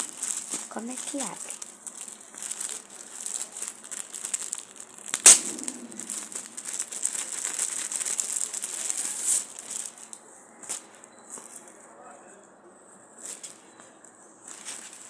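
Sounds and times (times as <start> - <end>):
crinkly packaging rustling: 0.0 - 11.8, 13.1 - 15.0
sharp snap: 5.2 - 5.9.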